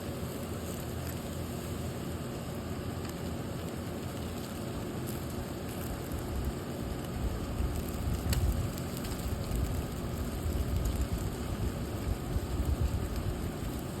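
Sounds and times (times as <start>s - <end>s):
grill fire hissing and crackling: 0.0s - 14.0s
wind rumble on microphone: 9.3s - 13.8s.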